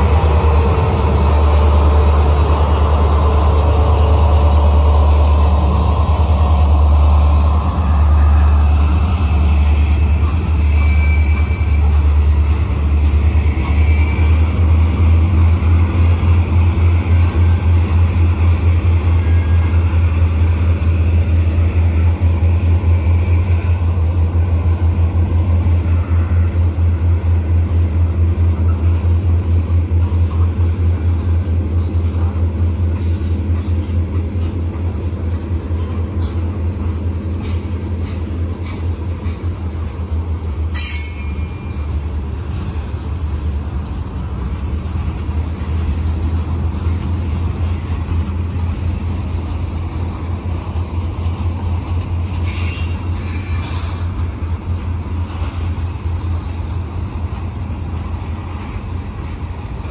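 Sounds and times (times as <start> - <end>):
train rumbling past: 0.0 - 59.9
faint wheel squeals: 8.9 - 12.7, 52.4 - 54.0.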